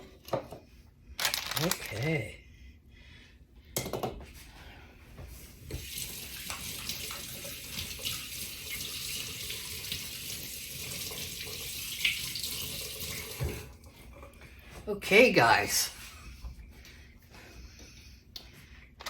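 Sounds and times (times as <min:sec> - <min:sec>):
tap water running into sink: 0:05.7 - 0:13.9.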